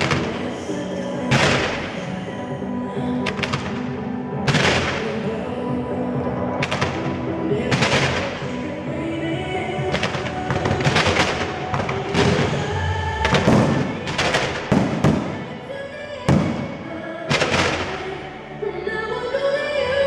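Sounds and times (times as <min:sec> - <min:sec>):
music playing: 0:00.0 - 0:20.0
fireworks bangs: 0:01.3 - 0:02.1, 0:04.5 - 0:05.3, 0:06.6 - 0:08.7, 0:09.9 - 0:15.6, 0:16.3 - 0:18.1.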